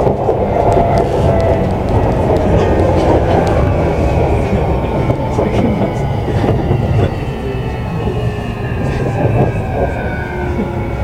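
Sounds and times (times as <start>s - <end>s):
faint train whine: 0.0s - 11.0s
train wheels rumbling on rail: 0.0s - 11.0s.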